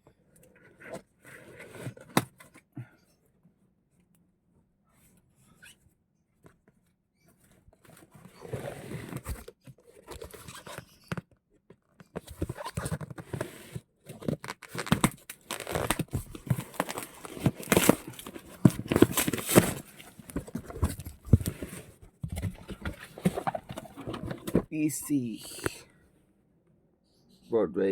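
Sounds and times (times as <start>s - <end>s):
packaging torn open and crinkled: 14.4s - 19.9s.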